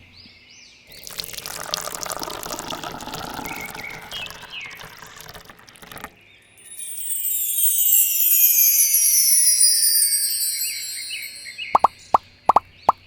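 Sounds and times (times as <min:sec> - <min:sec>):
water pouring and splashing: 0:00.9 - 0:06.2.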